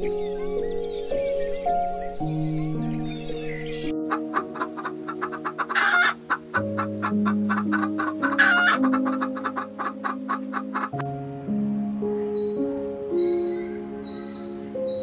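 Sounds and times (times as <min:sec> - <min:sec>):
soft background music: 0:00.0 - 0:15.0
chickens clucking: 0:02.3 - 0:11.1
loud chicken calls: 0:04.0 - 0:11.0.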